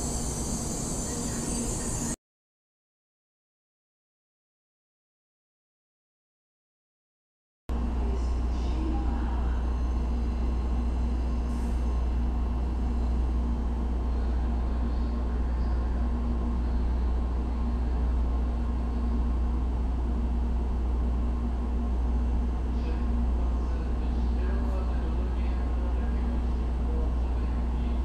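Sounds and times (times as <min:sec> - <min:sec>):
trains humming at platform: 0:00.0 - 0:02.2, 0:07.7 - 0:28.0.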